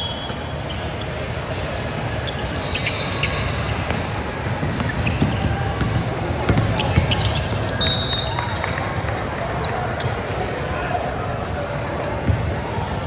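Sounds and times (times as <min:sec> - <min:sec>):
basketball bouncing on gym floor: 0:03.9 - 0:07.8.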